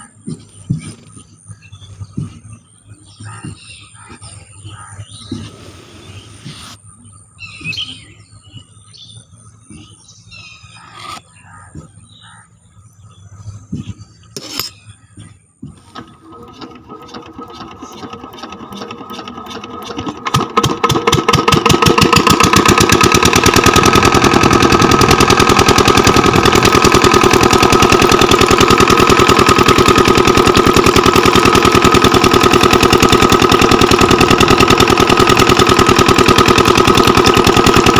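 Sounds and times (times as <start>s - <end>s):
miniature diesel engine running: 15.7s - 37.9s.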